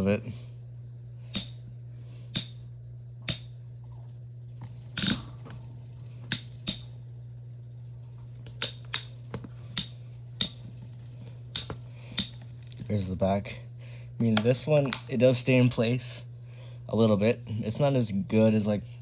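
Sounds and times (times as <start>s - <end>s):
steady low hum: 0.0s - 19.0s
plastic fan clicks and knocks: 1.4s - 1.6s, 5.0s - 5.6s, 6.3s - 6.9s, 11.6s - 12.8s, 14.2s - 15.2s.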